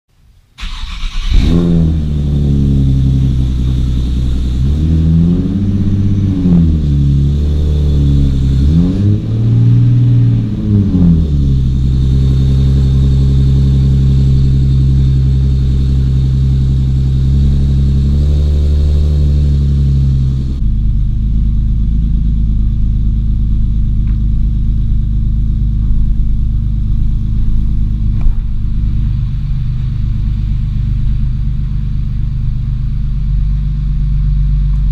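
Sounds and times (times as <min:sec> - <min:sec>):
car engine idling and revving: 0:00.6 - 0:34.9.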